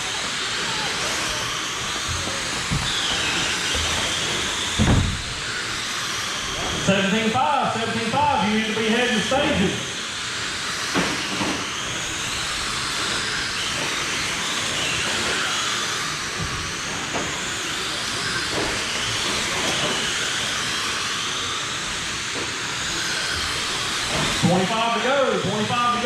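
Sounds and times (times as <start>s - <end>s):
rc car motors whining: 0.0s - 26.0s.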